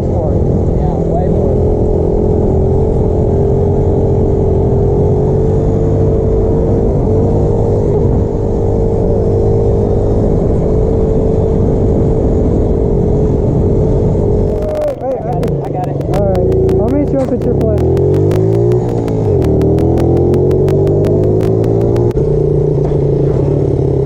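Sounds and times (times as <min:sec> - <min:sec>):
motorcycle engine running: 0:12.9 - 0:24.0.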